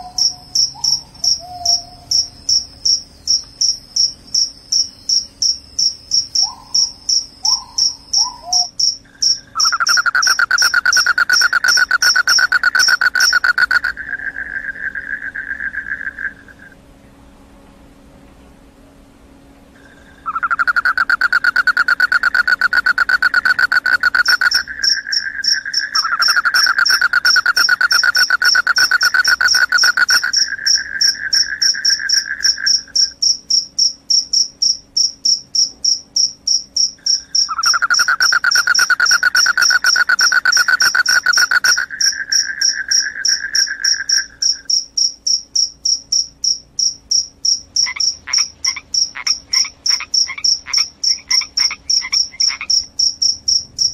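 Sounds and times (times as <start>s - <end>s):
crickets high trill: 0.0s - 16.8s, 19.8s - 53.9s
crickets lower-pitched trill: 0.0s - 16.8s, 19.8s - 53.9s.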